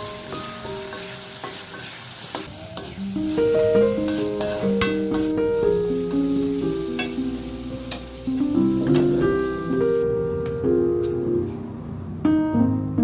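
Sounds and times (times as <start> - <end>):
food sizzling in a pan: 0.0 - 10.0
background piano music: 0.0 - 13.0
utensil clicking against pan: 7.0 - 7.2, 7.9 - 8.1.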